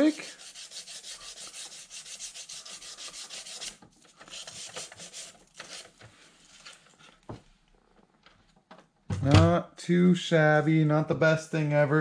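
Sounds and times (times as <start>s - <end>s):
sandpaper scraping paint: 0.0s - 6.0s.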